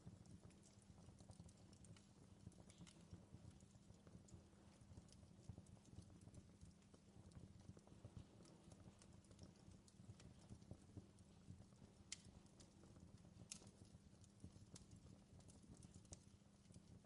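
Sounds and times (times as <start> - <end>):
campfire crackling: 0.1 - 17.0.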